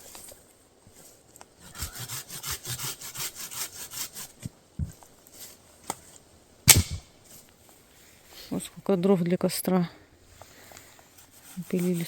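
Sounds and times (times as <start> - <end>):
hand saw cutting wood: 1.6 - 4.5, 11.2 - 12.0
loud thump: 6.7 - 7.1.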